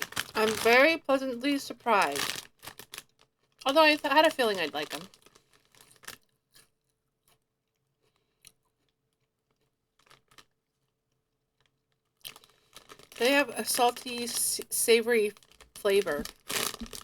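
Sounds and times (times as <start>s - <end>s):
chips crunching: 0.0s - 1.0s, 12.2s - 13.4s, 15.4s - 17.0s.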